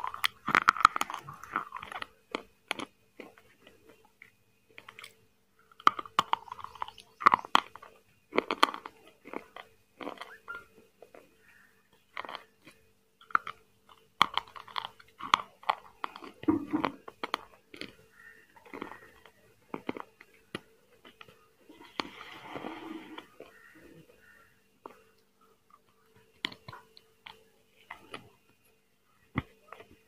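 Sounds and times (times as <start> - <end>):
chewing and crunching: 0.0 - 30.0
mouth clicks: 5.8 - 12.4.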